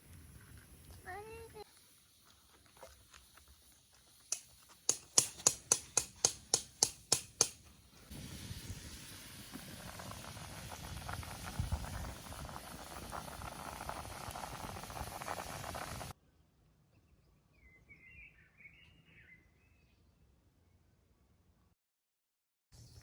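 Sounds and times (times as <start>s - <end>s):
fine crackle: 0.0s - 4.8s, 8.0s - 16.1s
steady hiss with low rumble: 7.8s - 16.1s.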